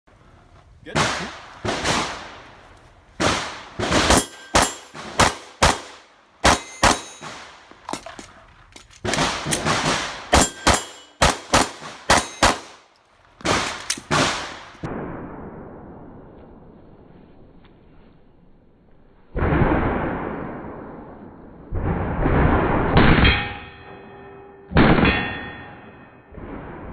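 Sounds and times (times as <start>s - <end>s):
pistol shots: 0.9s - 2.4s, 3.2s - 14.8s
metal target ringing: 4.1s - 8.2s, 9.1s - 12.7s, 23.0s - 26.4s.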